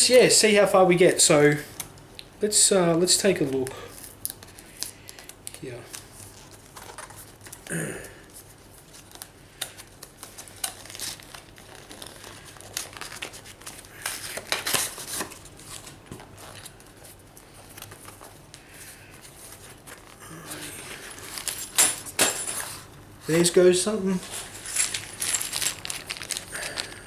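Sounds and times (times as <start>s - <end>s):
plastic and paper crinkling: 3.3s - 7.7s, 8.3s - 27.0s.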